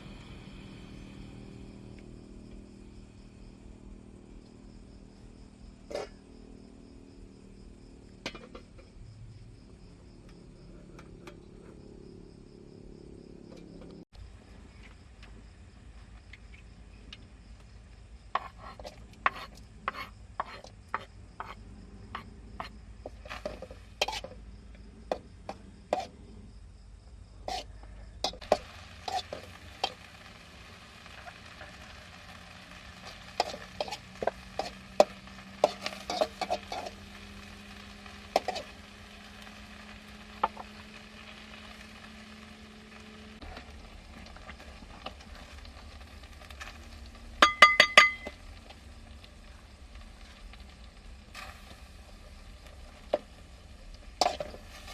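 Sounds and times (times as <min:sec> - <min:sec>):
utensil clinking in cooking pot: 0:47.4 - 0:48.4.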